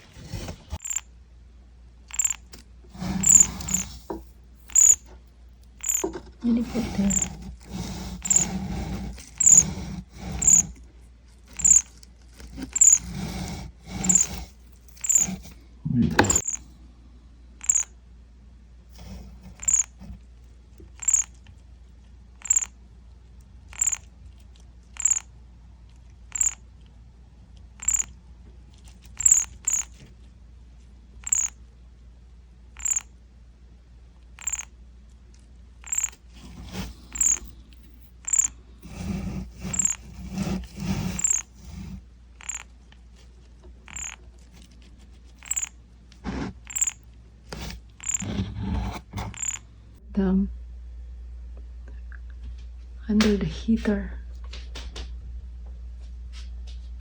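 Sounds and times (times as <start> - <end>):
baby birds peeping: 0.3 - 1.1, 2.1 - 5.1, 5.7 - 10.8, 11.5 - 15.6, 16.2 - 16.7, 17.6 - 18.0, 19.0 - 20.2, 20.9 - 21.4, 22.4 - 22.7, 23.8 - 24.0, 25.0 - 25.3, 26.3 - 26.6, 27.8 - 28.1, 29.0 - 30.1, 31.2 - 31.6, 32.8 - 33.1, 34.4 - 34.7, 35.8 - 42.7, 43.8 - 45.8, 46.6 - 49.7.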